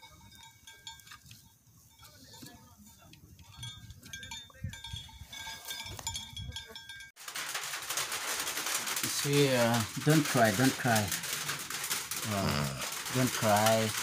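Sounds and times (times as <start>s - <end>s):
faint outdoor sounds: 0.0s - 7.1s
rain on a metal roof: 7.2s - 14.0s.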